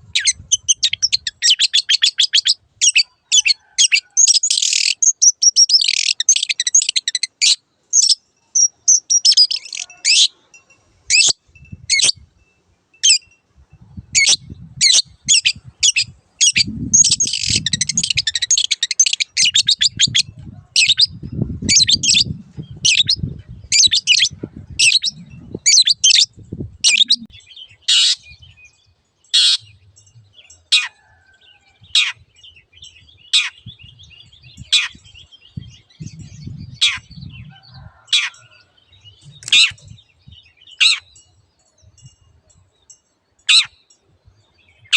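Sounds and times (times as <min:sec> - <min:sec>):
bird rapid chattering: 0:14.2 - 0:27.3.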